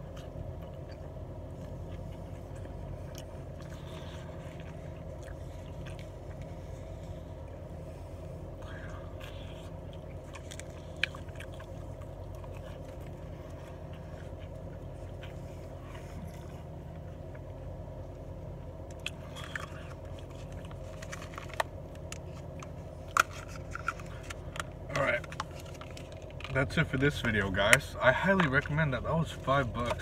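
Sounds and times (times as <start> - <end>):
person biting and chewing: 0.0 - 6.7, 8.5 - 17.5, 18.8 - 26.5
low hum inside a car: 0.0 - 30.0.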